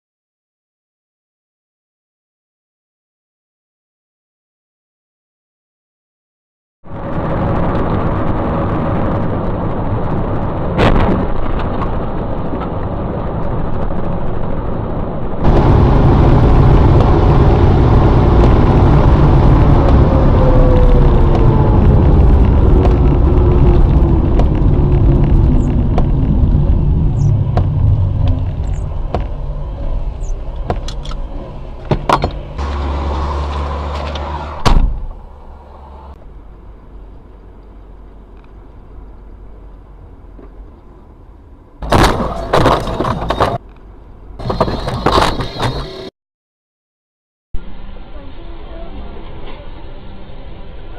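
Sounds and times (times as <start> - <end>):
car engine and road noise: 6.8 - 46.1
falling whine: 6.9 - 36.8.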